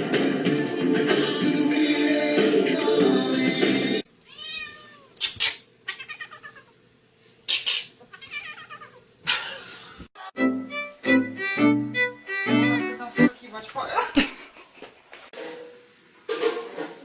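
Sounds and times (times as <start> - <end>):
music: 0.0 - 4.0, 10.2 - 13.4
cat meowing and yowling: 4.3 - 5.2, 5.9 - 6.7, 8.1 - 9.0.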